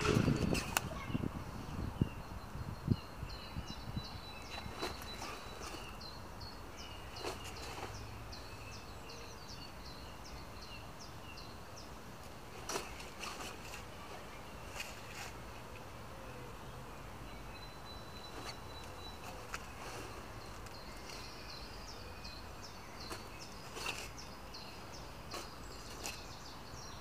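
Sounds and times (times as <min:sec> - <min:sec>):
bird singing repeated notes: 0:16.3 - 0:27.0.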